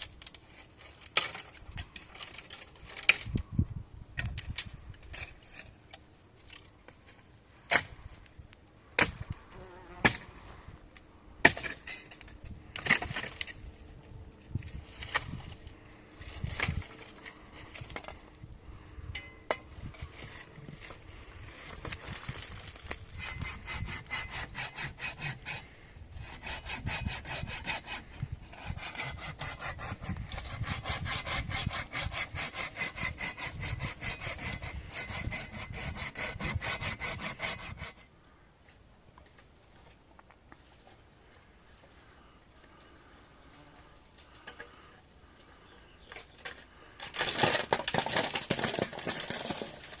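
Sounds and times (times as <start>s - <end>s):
saw cutting through wood: 23.1s - 38.1s.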